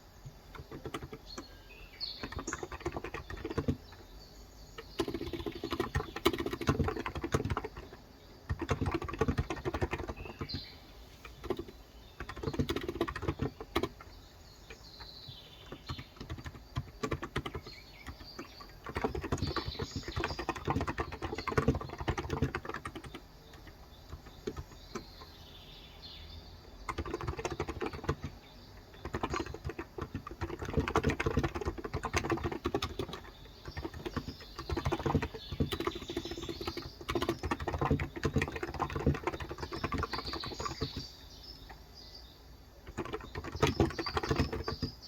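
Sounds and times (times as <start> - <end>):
faint birds chirping: 0.0 - 45.0
keyboard typing: 0.2 - 4.0, 4.8 - 25.4, 26.8 - 41.8, 42.8 - 45.0.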